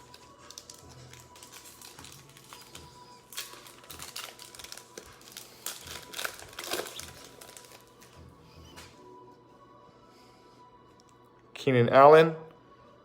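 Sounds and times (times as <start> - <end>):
plastic packaging crinkling: 0.0 - 8.2
faint music beat: 0.0 - 13.0.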